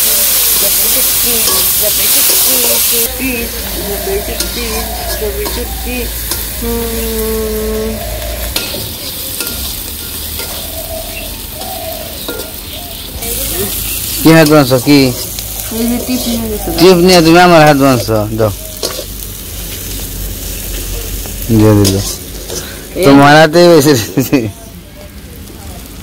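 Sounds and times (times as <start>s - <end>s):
food sizzling in hot oil: 0.0s - 26.0s
metal spatula scraping pan: 3.6s - 6.6s, 21.7s - 22.8s.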